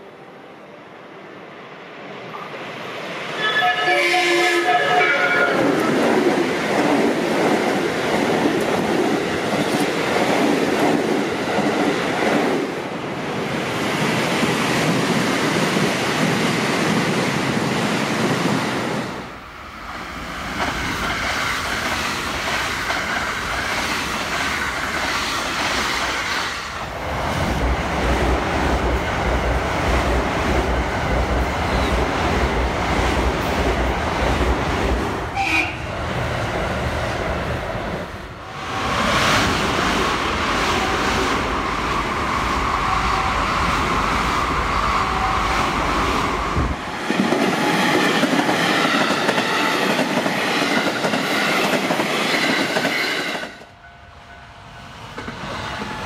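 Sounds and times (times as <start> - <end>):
train horn: 3.4 - 5.9, 35.3 - 35.9, 45.0 - 45.6
wheels rumbling on rail: 13.6 - 56.0.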